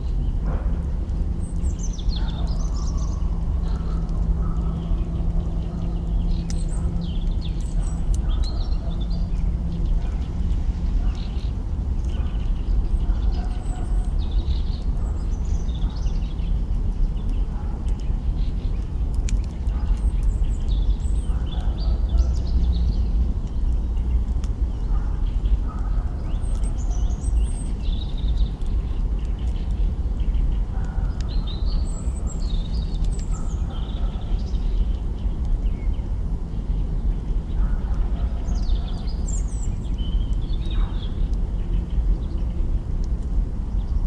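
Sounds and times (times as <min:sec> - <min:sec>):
small birds chirping: 0:01.0 - 0:44.0.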